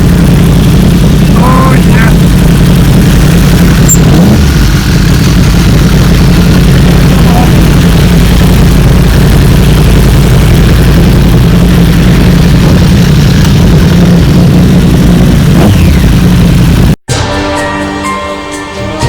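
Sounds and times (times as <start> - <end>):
motorcycle engines running: 0.0 - 17.0
music: 17.1 - 19.0.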